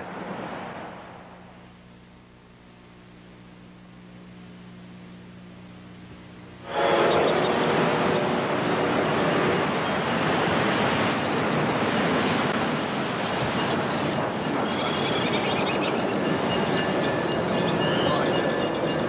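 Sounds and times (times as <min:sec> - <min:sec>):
train approaching rushing: 0:06.6 - 0:19.0.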